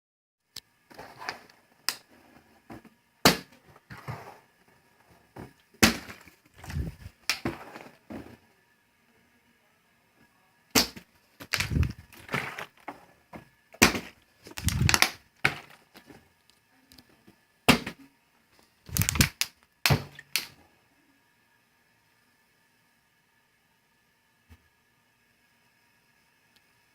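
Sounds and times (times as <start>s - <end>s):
plastic bottles knocking and clattering: 5.4s - 8.4s, 10.8s - 13.0s, 13.8s - 16.2s, 18.9s - 20.5s.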